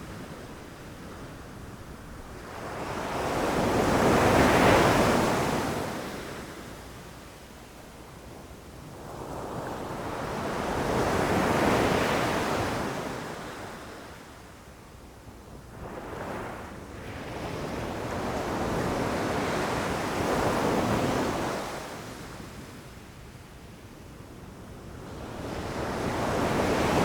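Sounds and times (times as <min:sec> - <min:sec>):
ocean waves breaking on shore: 0:00.7 - 0:06.7, 0:25.0 - 0:27.0.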